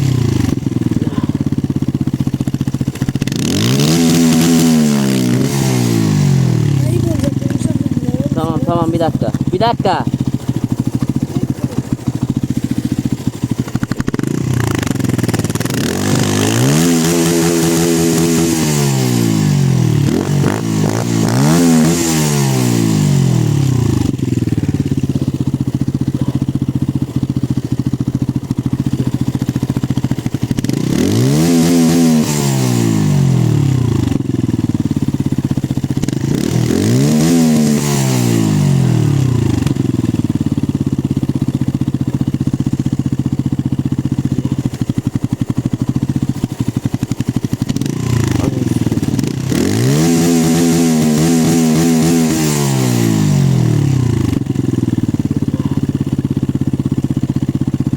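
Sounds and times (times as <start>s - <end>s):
motorcycle engine idling and revving: 0.0s - 57.9s.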